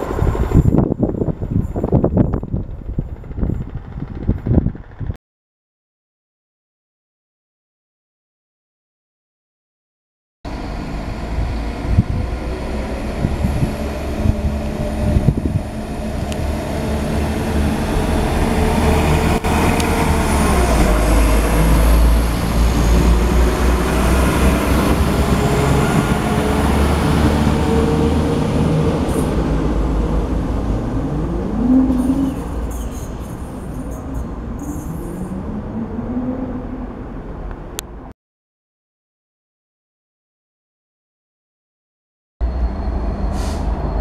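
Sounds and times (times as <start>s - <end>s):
diesel train engines passing: 0.0s - 5.1s, 10.5s - 37.8s, 42.4s - 44.0s
wheels rumbling on rail: 0.0s - 5.2s, 10.5s - 38.1s, 42.4s - 44.0s.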